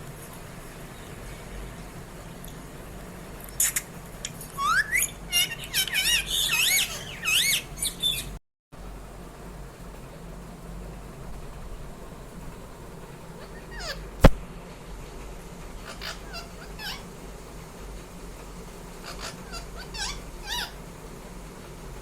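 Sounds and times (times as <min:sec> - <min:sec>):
parrot squawks and chirps: 0:03.5 - 0:03.9, 0:04.5 - 0:08.4, 0:13.4 - 0:14.1, 0:15.8 - 0:17.1, 0:19.0 - 0:20.8.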